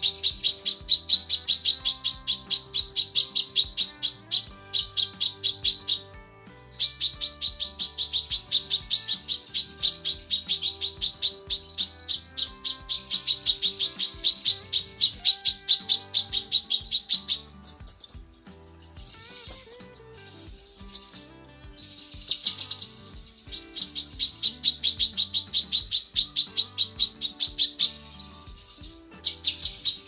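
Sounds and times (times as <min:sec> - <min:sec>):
bird calling in high chirps: 0:00.0 - 0:30.0.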